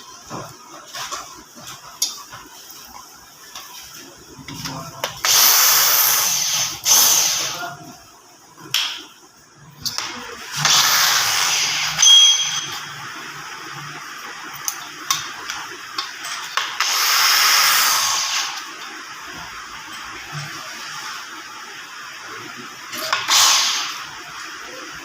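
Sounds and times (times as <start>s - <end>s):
power tool running: 5.2s - 7.6s, 10.5s - 12.8s, 16.6s - 18.8s.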